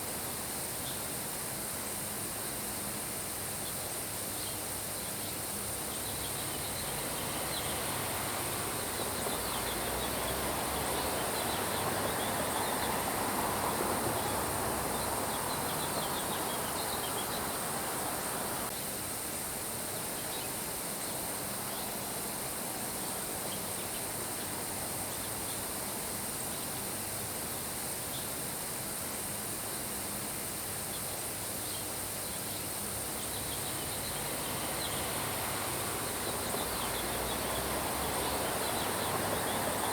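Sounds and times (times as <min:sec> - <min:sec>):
steady rain: 0:06.2 - 0:18.7, 0:33.4 - 0:39.9.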